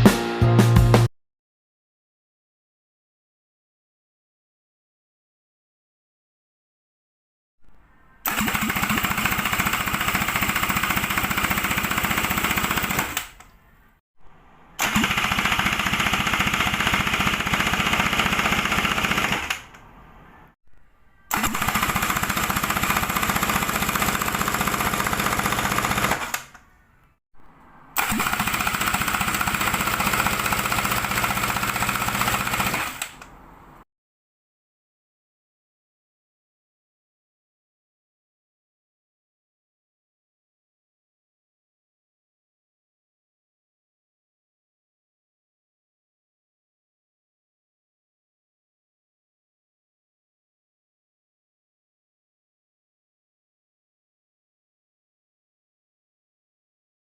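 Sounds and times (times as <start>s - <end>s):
jet ski engine turning over: 28.0s - 29.2s.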